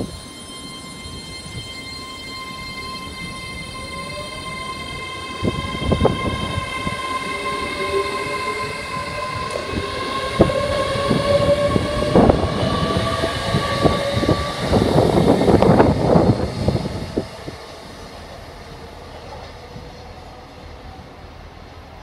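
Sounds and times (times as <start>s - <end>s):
train whine: 0.0s - 22.0s.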